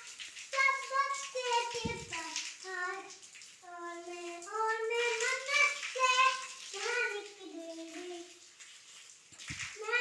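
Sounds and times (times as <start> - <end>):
child singing: 0.5 - 8.4, 9.7 - 10.0
low thump: 1.8 - 2.2.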